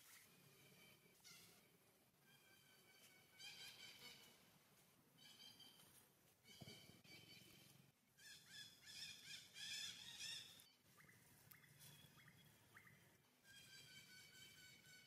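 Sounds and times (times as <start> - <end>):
faint bird chirps: 5.2 - 15.0.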